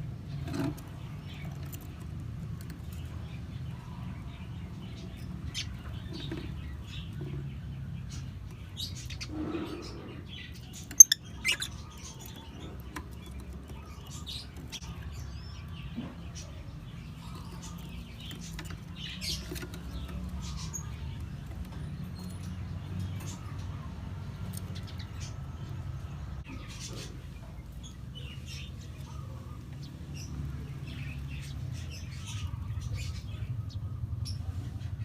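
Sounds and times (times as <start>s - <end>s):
birds chirping: 0.0s - 35.0s
scratching and rustling: 0.2s - 3.6s.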